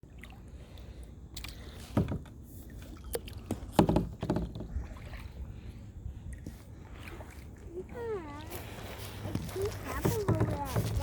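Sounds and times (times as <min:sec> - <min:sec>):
low rumble of water and wind: 0:00.0 - 0:11.0.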